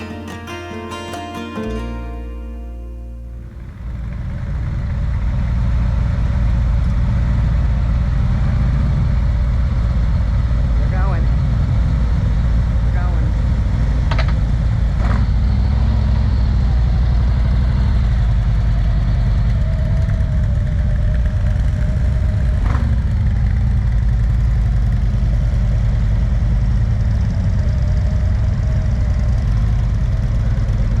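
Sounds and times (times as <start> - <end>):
motorcycle engine running: 14.4 - 31.0.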